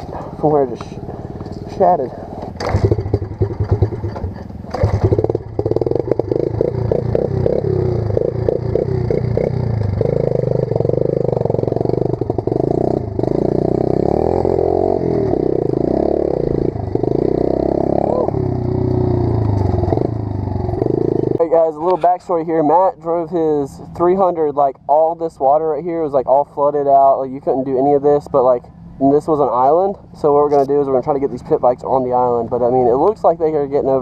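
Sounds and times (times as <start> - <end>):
pit bike engine revving: 0.0 - 22.1
clatter: 2.4 - 13.8.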